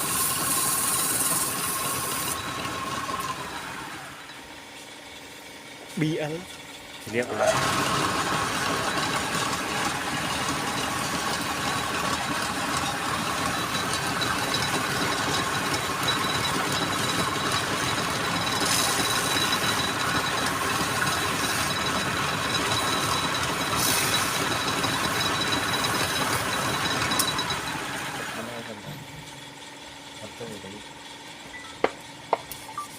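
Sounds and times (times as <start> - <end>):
wood lathe cutting wood: 0.0 - 4.3, 7.2 - 28.8.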